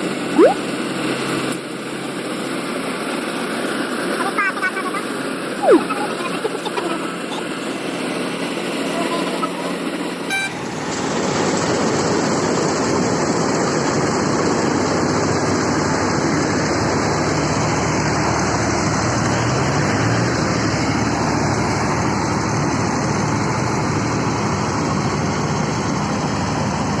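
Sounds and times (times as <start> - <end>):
combine harvester running: 6.1 - 27.0.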